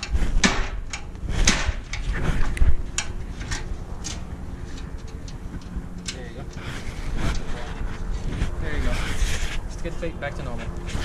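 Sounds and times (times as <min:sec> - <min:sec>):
metal plate knocking and creaking: 0:00.0 - 0:08.5.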